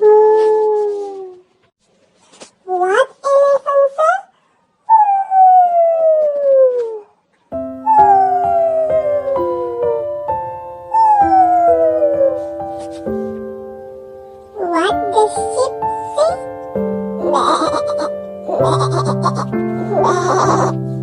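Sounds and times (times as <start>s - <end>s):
dog howling: 4.9s - 7.1s, 7.9s - 10.1s, 10.9s - 12.4s, 19.8s - 20.8s
simple piano music: 7.5s - 21.0s
dog yelping: 7.9s - 9.5s, 17.2s - 20.8s.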